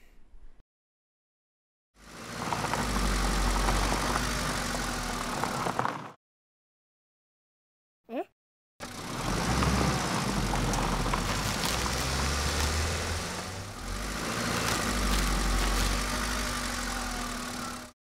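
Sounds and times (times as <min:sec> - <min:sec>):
car engine running: 0:02.0 - 0:06.1, 0:08.8 - 0:18.0.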